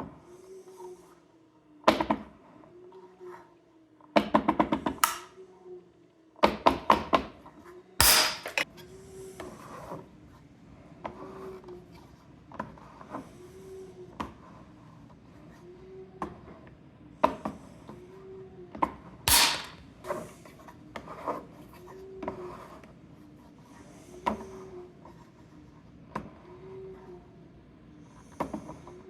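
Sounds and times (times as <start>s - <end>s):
harsh burst: 19.3s - 19.8s.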